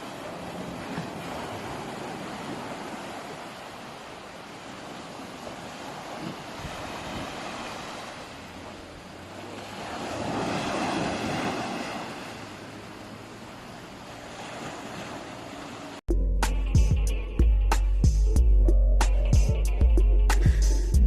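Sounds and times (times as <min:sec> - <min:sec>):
sea waves washing: 0:00.0 - 0:16.0.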